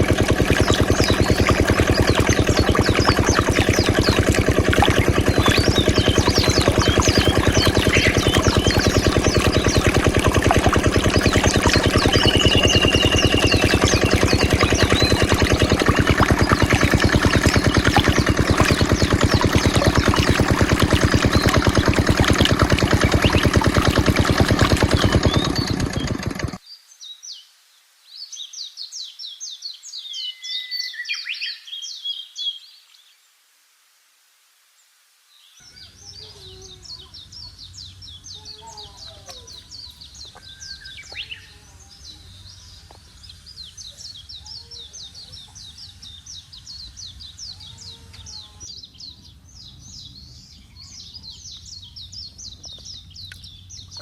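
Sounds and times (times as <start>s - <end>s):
diesel water pump engine running: 0.0s - 26.6s
birds chirping in high trills: 0.0s - 27.4s, 35.5s - 54.0s.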